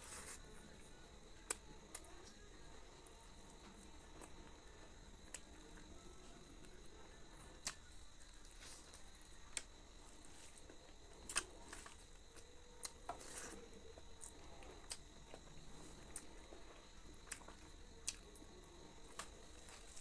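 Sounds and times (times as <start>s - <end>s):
faint steady hiss: 0.0s - 20.0s
wet eating clicks and smacks: 1.4s - 2.4s, 7.6s - 9.8s, 10.6s - 18.5s, 19.1s - 20.0s.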